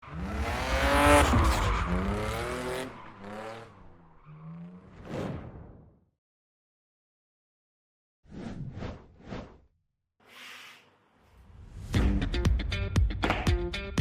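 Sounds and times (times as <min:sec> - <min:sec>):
car revving: 0:00.0 - 0:05.0
tyres skidding: 0:00.0 - 0:05.0.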